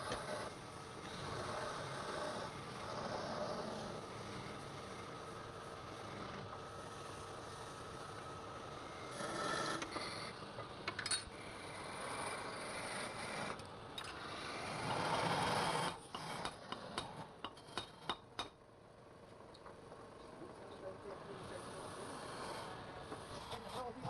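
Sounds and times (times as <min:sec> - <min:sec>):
tool scraping on wood: 0:00.0 - 0:04.5, 0:11.4 - 0:18.3, 0:21.6 - 0:24.0.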